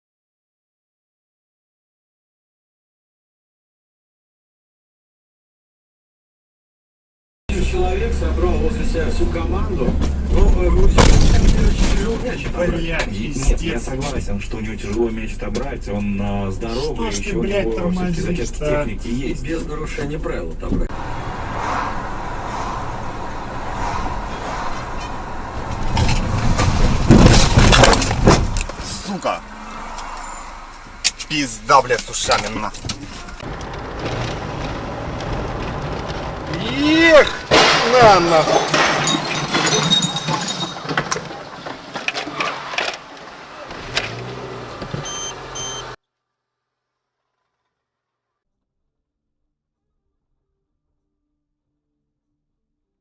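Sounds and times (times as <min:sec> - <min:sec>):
road and engine noise in car: 0:07.5 - 0:37.3, 0:42.1 - 0:46.0
short beeps: 0:45.0 - 0:46.0.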